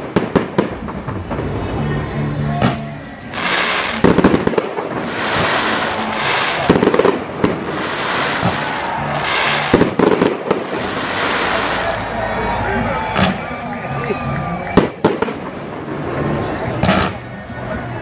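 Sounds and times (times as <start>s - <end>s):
fireworks crackling and hissing: 0.0s - 12.3s
faint music: 0.0s - 18.0s.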